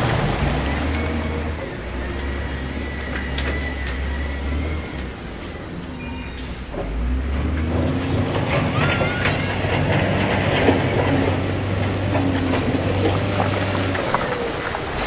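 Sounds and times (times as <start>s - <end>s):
diesel engine drone: 0.0s - 15.0s
brief squeals: 0.7s - 7.0s, 8.5s - 10.0s.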